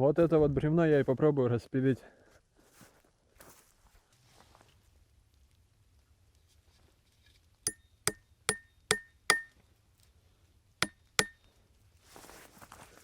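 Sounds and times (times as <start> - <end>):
sharp metallic strikes: 8.5 - 9.5.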